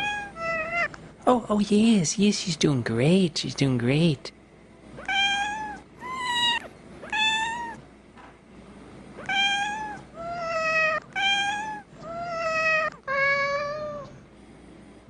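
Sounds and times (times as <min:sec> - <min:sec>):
cat meowing: 0:00.0 - 0:01.0, 0:05.0 - 0:07.8, 0:09.2 - 0:14.2.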